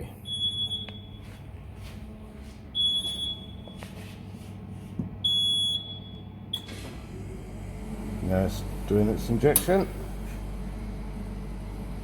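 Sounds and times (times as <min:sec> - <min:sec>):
steady low hum: 0:00.0 - 0:12.0
high-pitched machine beeps: 0:00.2 - 0:01.2, 0:02.8 - 0:03.8, 0:05.2 - 0:06.2.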